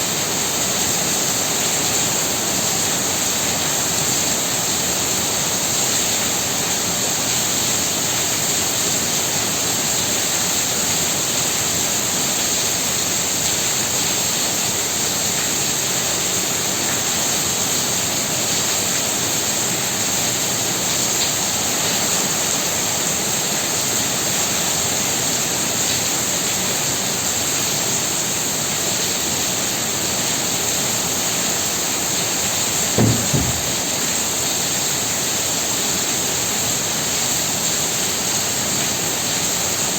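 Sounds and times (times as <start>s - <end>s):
heavy rain falling: 0.0s - 39.9s
low double thump: 33.0s - 34.1s.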